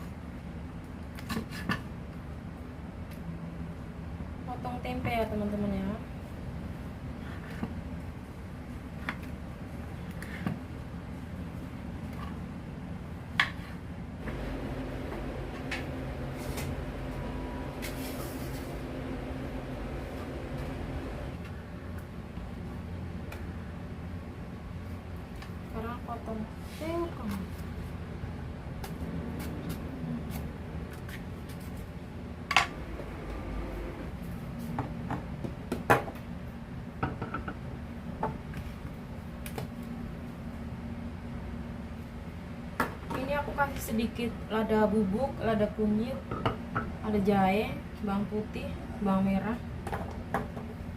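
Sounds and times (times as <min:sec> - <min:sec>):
steady low hum: 0:02.1 - 0:35.7.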